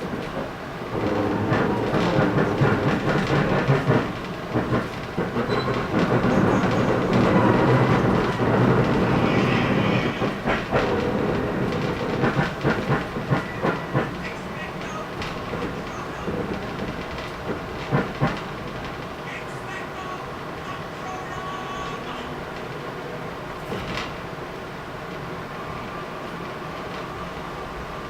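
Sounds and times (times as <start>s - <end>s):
train wheels clacking over rail joints: 0.0s - 19.5s, 22.5s - 24.4s
train rumbling: 0.0s - 28.0s.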